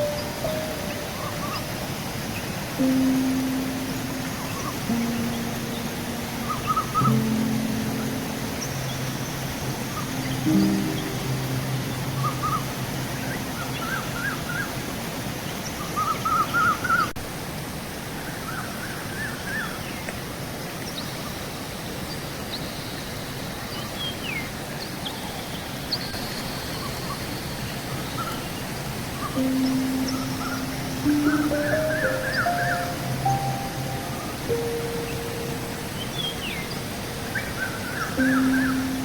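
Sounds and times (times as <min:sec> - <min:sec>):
birds chirping: 0:00.0 - 0:14.8, 0:27.9 - 0:39.0
river water rushing: 0:00.0 - 0:19.2, 0:25.8 - 0:39.0.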